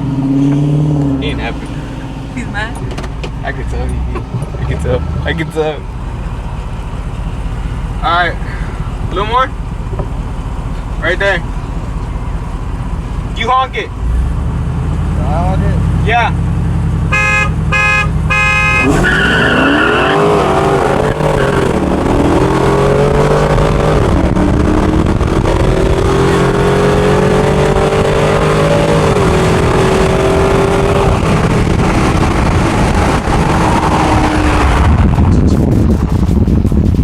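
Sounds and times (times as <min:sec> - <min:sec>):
engine revving through upshifts: 0:00.0 - 0:09.9, 0:12.6 - 0:36.1
car horn honk: 0:17.0 - 0:20.5.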